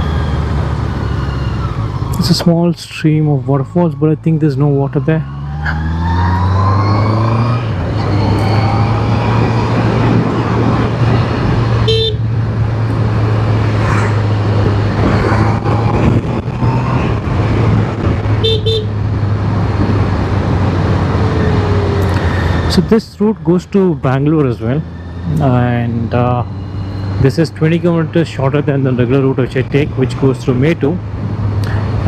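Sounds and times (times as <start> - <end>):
wind rushing over microphone: 5.5 - 24.0, 29.3 - 32.0.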